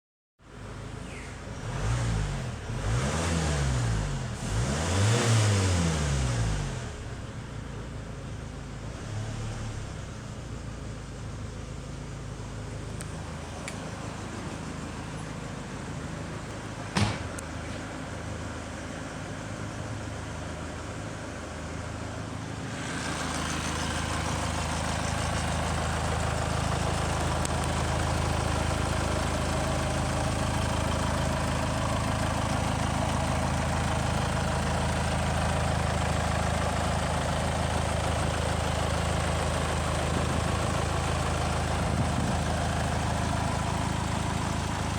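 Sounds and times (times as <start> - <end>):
car engine idling: 6.5 - 9.0, 9.6 - 44.9
sharp knock: 16.9 - 17.4.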